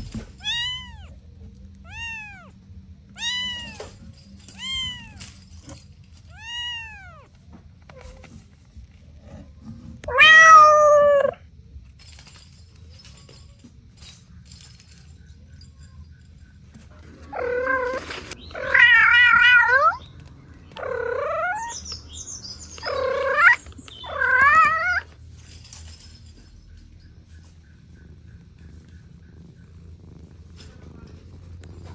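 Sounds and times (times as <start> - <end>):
cat meowing: 0.3 - 1.2, 1.8 - 5.3, 6.3 - 7.3, 10.0 - 11.4, 17.3 - 20.0, 20.8 - 21.9, 22.8 - 25.1.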